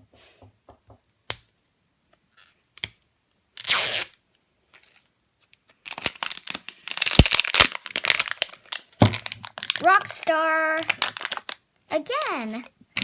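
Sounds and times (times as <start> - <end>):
packaging ripping: 3.6 - 4.1, 5.8 - 11.6
plastic packaging crinkling: 5.8 - 12.7.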